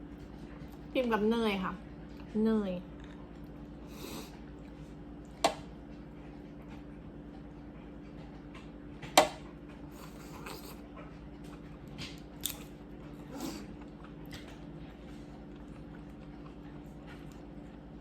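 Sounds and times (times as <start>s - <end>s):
faint steady hum: 0.0s - 18.0s
chewing and biting seafood: 5.9s - 18.0s
small crunches and clicks: 11.8s - 12.7s.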